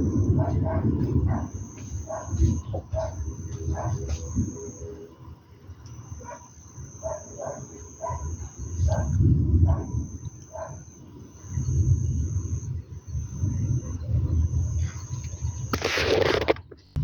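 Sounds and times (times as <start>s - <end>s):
low-pitched noise: 0.0s - 5.0s.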